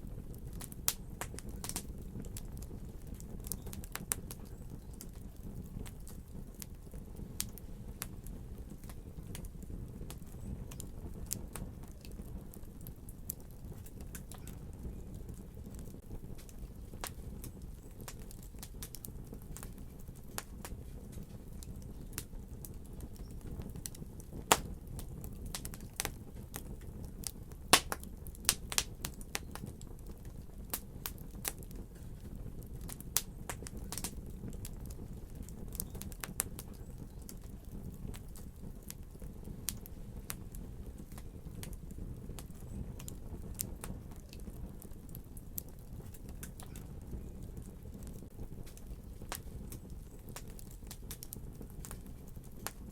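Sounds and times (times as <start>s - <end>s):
fire popping and snapping: 0.0s - 52.9s
wood fire crackling: 0.0s - 52.9s.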